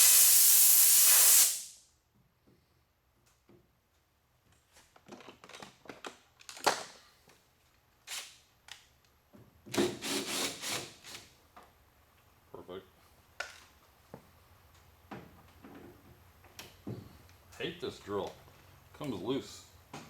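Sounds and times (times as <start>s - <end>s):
tools and parts clicking and knocking: 4.8s - 7.0s.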